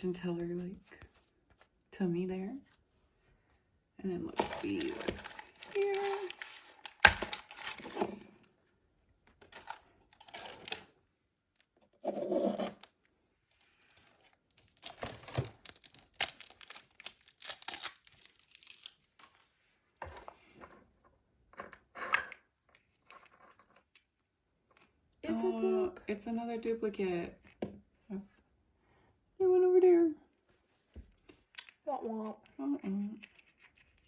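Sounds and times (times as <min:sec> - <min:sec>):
packaging being torn open: 0:04.4 - 0:08.0, 0:13.7 - 0:19.1.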